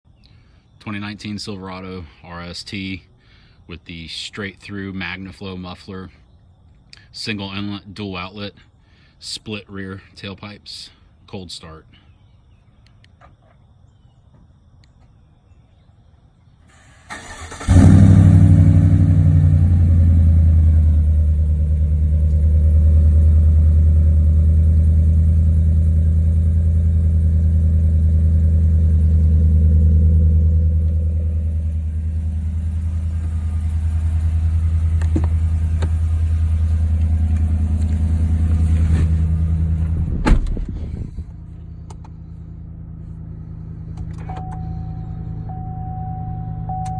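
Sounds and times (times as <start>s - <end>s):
engine flaring and idling: 16.9s - 46.9s
engine cranking: 17.0s - 23.2s.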